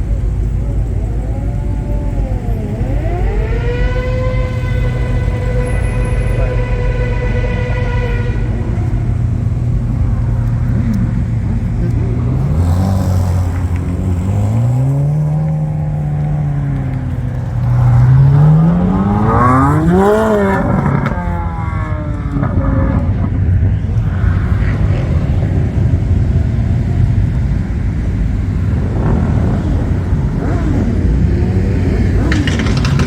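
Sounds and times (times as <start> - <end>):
engine idling: 0.0 - 22.5
car engine revving: 0.0 - 33.0.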